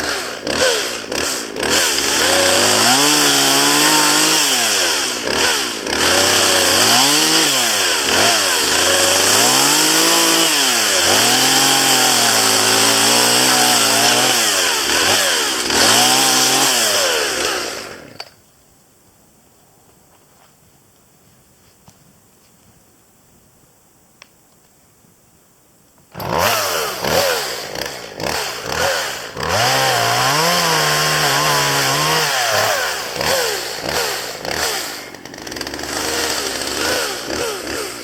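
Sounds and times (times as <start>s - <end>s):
chainsaw cutting wood: 0.0s - 18.4s, 26.1s - 38.0s.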